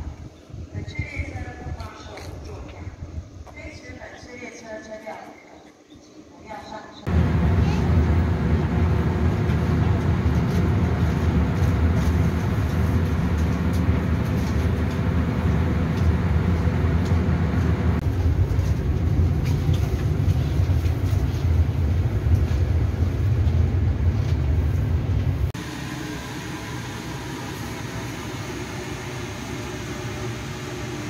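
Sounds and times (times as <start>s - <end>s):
low rumble inside train carriage: 7.1s - 31.0s.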